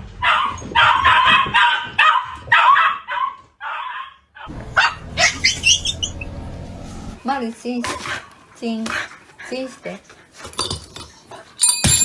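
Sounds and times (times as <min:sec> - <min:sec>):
dog barking and yipping: 0:00.1 - 0:07.2.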